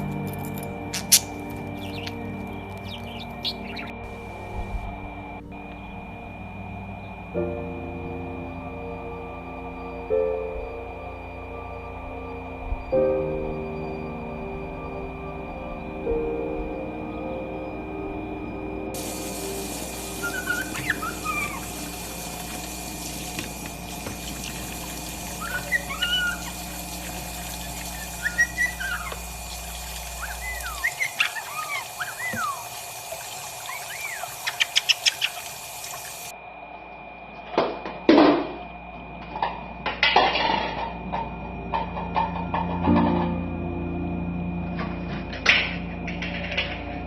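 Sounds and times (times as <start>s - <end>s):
bird whistling and chirping: 0.9s - 4.7s, 19.0s - 32.9s, 33.5s - 36.3s.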